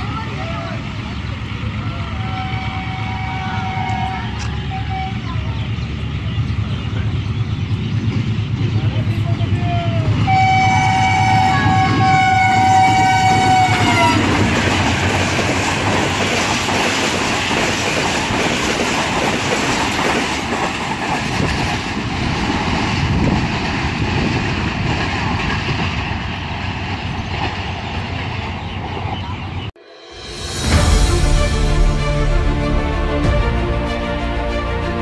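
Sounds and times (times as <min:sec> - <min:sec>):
train passing at speed: 0:00.0 - 0:35.0
train horn: 0:01.9 - 0:05.4, 0:10.2 - 0:14.5.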